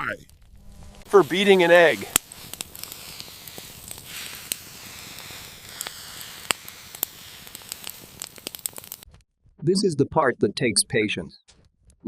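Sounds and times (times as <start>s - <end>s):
wood fire crackling and popping: 0.0s - 9.1s.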